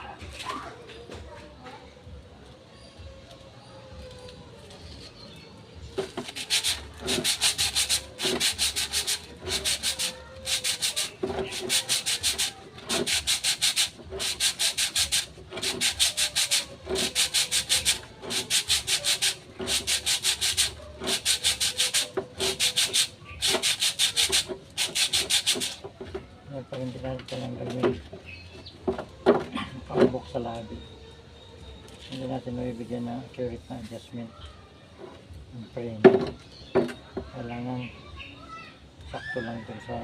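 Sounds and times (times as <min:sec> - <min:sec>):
sandpaper rubbing on metal: 0:06.0 - 0:25.9.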